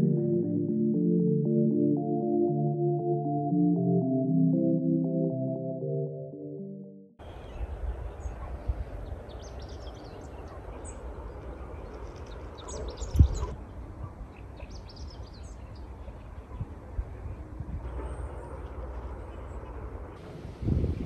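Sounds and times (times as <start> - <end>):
small birds chirping: 7.2 - 16.8.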